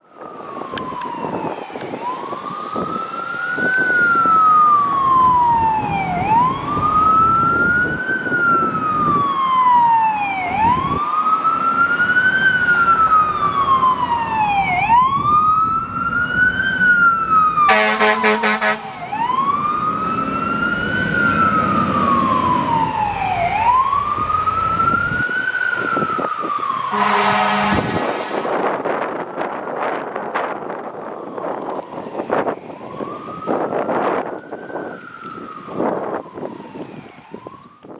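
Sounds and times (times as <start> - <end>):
fire truck siren wailing: 0.0 - 37.9
horn blasts: 17.7 - 18.9, 26.9 - 28.6.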